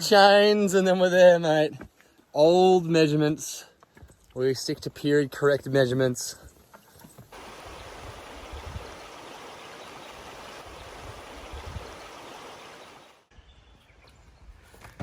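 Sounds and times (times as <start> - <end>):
rushing water: 7.3 - 13.3.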